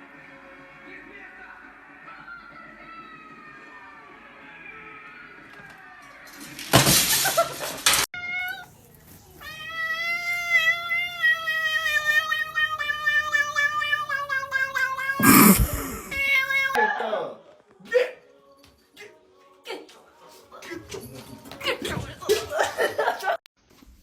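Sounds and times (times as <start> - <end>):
cat yowling: 9.4 - 16.8.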